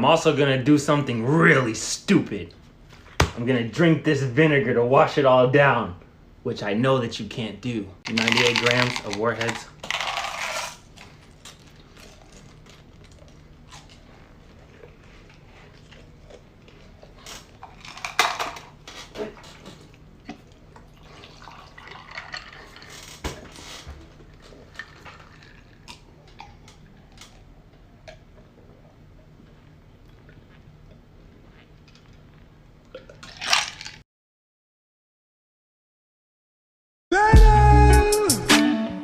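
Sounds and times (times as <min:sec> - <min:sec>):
candy packets rustling: 0:08.1 - 0:13.8, 0:33.2 - 0:34.0
hard candies clicking and rattling: 0:08.1 - 0:13.9, 0:33.2 - 0:34.0.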